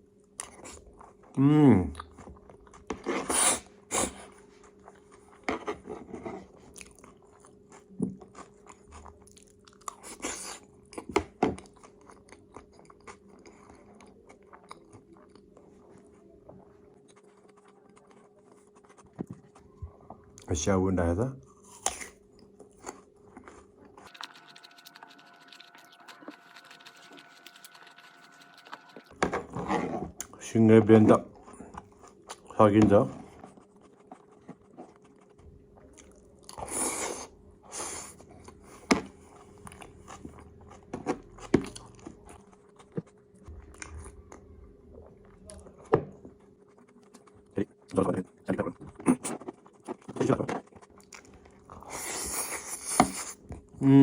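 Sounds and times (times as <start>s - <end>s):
mouth chewing food: 0.1s - 20.5s, 21.4s - 53.8s.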